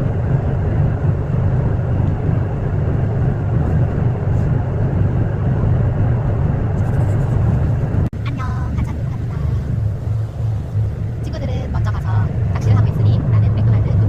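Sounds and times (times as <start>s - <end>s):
ferry engine droning: 0.0s - 14.0s.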